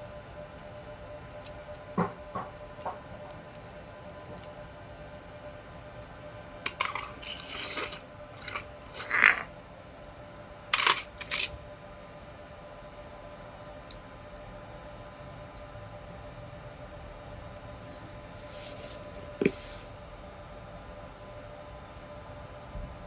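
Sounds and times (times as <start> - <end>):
small metal parts clinking: 6.7 - 9.5, 10.7 - 11.6.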